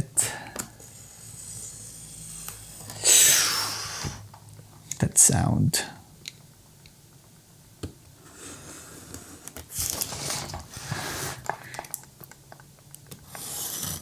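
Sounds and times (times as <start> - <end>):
cardboard box scraping and rustling: 9.8 - 11.4.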